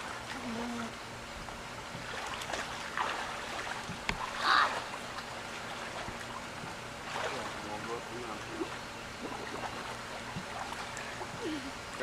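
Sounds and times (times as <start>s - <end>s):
boat motor: 0.0s - 12.0s
water rushing: 2.0s - 12.0s.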